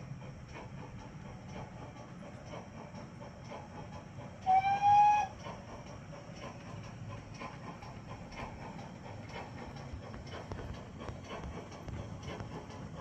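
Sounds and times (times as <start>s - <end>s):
model train running on track: 0.0s - 13.0s
model train whistle toot: 4.4s - 5.4s.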